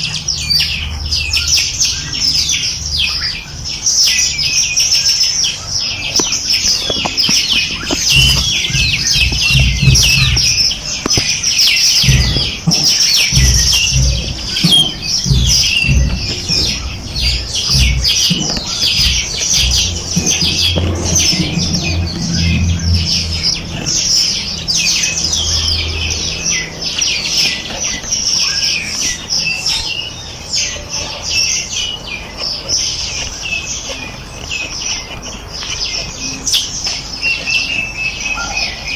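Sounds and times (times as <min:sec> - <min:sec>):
songbirds chirping and singing: 0:00.0 - 0:38.9
low uneven rumble: 0:06.0 - 0:29.2.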